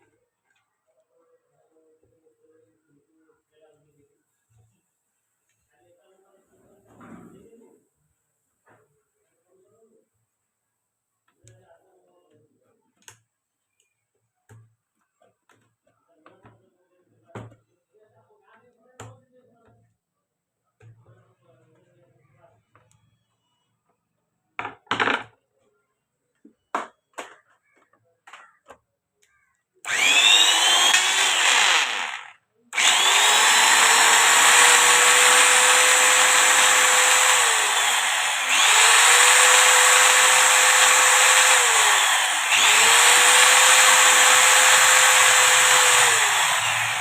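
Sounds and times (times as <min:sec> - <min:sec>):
angle grinder motor whining: 0:29.9 - 0:47.0.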